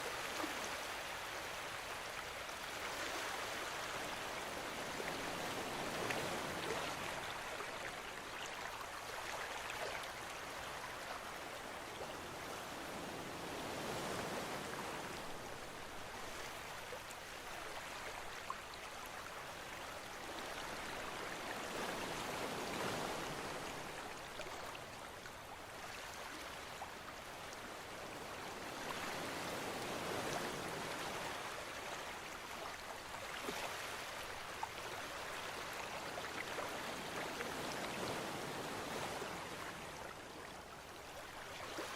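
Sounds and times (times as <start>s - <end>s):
wind through palm trees: 0.0s - 41.9s
ocean surf: 12.7s - 15.7s, 21.6s - 23.9s, 28.7s - 31.3s.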